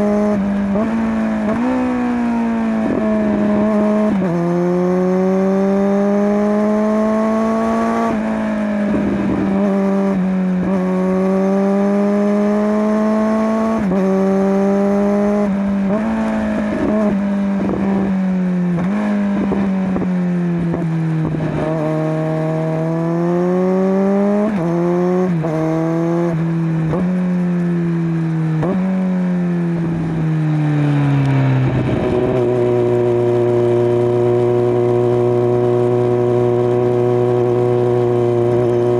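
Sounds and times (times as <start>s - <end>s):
motorcycle engine revving: 0.0s - 38.9s
wind noise: 7.6s - 11.2s, 13.6s - 22.3s, 31.1s - 35.2s.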